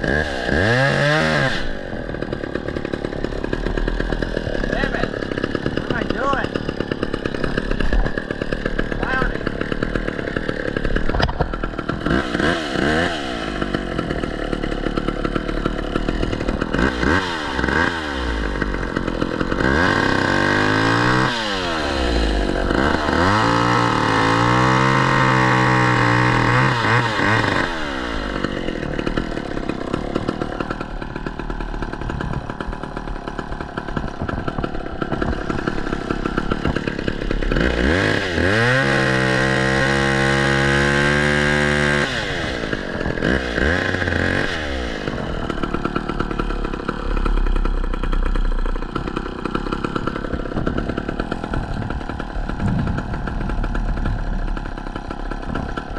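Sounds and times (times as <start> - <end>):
chainsaw revving: 0.0 - 55.9.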